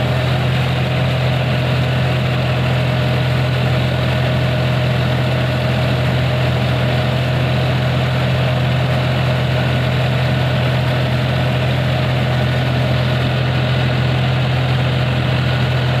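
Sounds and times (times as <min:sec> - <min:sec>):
tractor diesel engine idling: 0:00.0 - 0:16.0.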